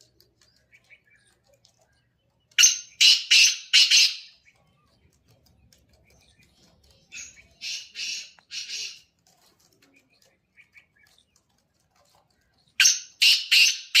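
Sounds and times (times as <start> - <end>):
bird harsh grating call: 2.6 - 4.4, 7.1 - 9.1, 12.8 - 14.0.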